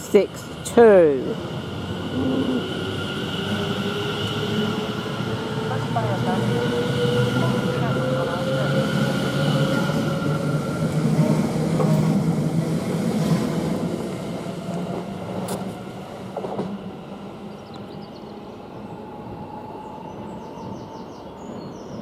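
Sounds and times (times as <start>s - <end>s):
electric train pulling away: 0.3s - 16.3s.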